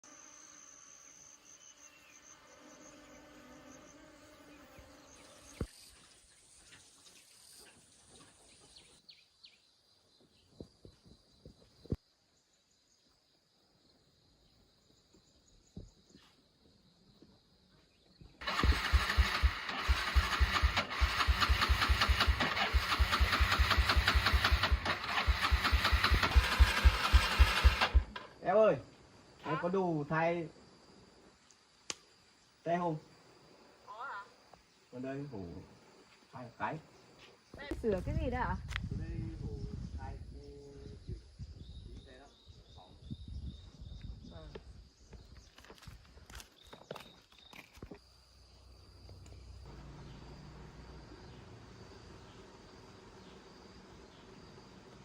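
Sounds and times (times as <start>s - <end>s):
motorbike engine idling: 18.4s - 28.2s.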